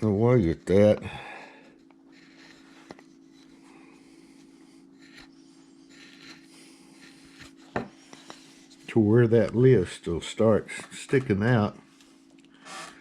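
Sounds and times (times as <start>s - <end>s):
steady low hum: 0.0s - 13.0s
wood carving tool scraping: 1.7s - 9.9s, 12.6s - 13.0s.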